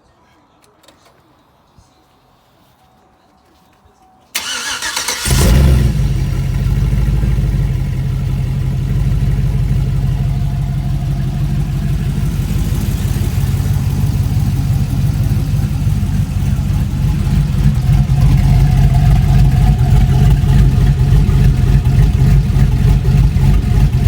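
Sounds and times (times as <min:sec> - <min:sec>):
starter cranking: 0:04.4 - 0:07.7, 0:08.8 - 0:24.0
engine idling loudly: 0:05.2 - 0:24.0.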